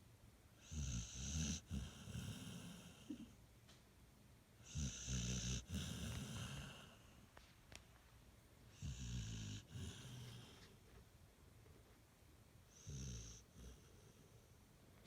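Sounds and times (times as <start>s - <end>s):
dog snoring: 0.6s - 3.3s, 4.6s - 7.1s, 8.7s - 10.7s, 12.7s - 14.5s.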